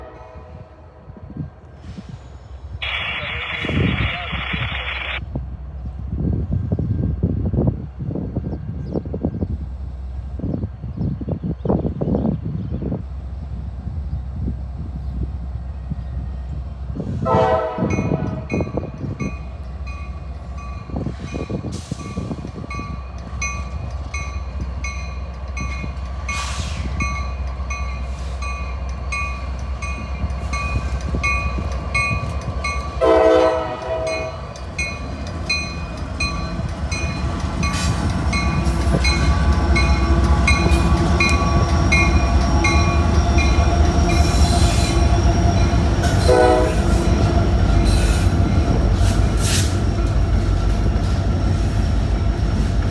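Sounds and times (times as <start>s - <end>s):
locomotive horn blasts: 0.0s - 0.8s, 17.2s - 18.6s, 33.0s - 34.4s, 46.1s - 47.1s
train rumble passing: 0.0s - 52.9s.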